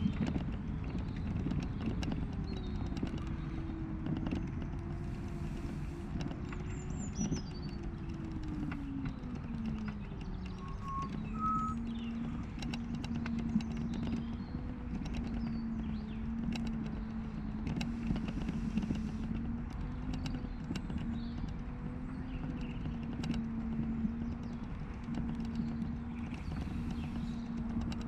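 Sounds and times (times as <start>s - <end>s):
rattling clicks over bumps: 0.0s - 28.0s
bird chirps: 9.8s - 12.5s.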